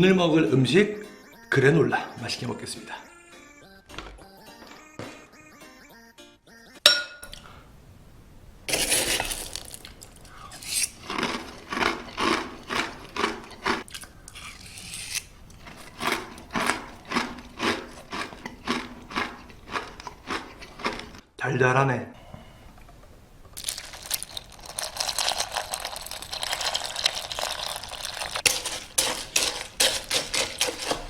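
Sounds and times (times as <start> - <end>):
spoon clinking against bowl: 6.9 - 7.3
crunchy chewing: 9.3 - 21.2.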